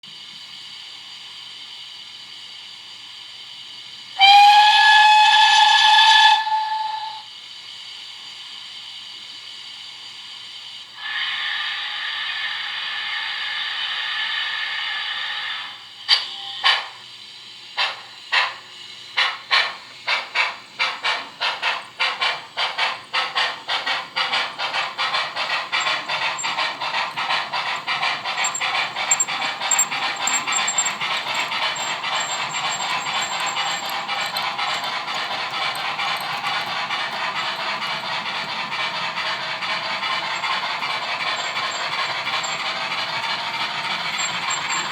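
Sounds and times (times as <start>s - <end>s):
steam hissing: 0.1s - 44.9s
steam whistle blast: 4.2s - 7.3s
locomotive exhaust chuffs: 19.2s - 44.9s.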